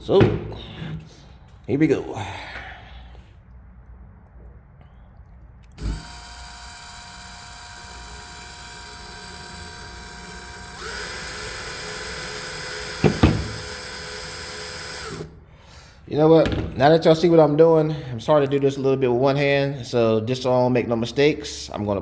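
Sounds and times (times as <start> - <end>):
power drill whining into metal: 5.7 - 15.4
sharp knocks: 10.8 - 15.2.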